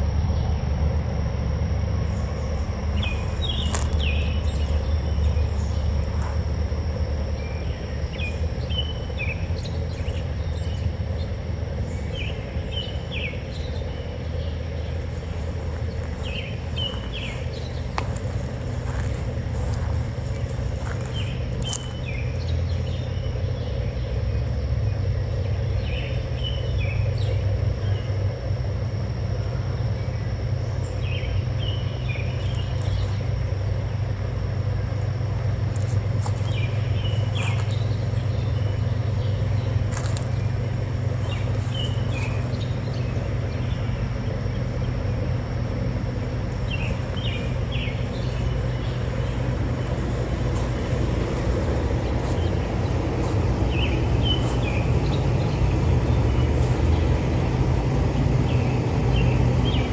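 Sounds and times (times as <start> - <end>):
steady low rumble: 0.0 - 59.9
bird chirping: 46.5 - 53.0.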